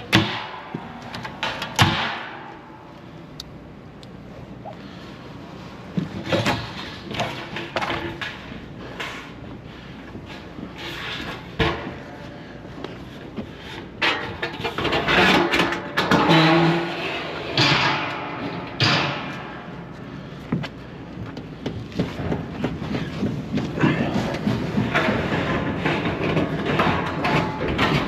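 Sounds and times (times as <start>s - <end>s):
hard objects knocking and scraping: 20.5s - 28.0s.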